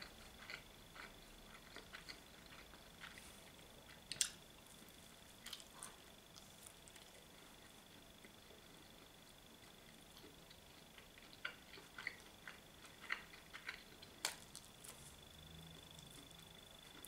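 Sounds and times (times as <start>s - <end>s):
wet chewing clicks and smacks: 0.2s - 3.2s, 3.9s - 4.4s, 5.4s - 14.8s.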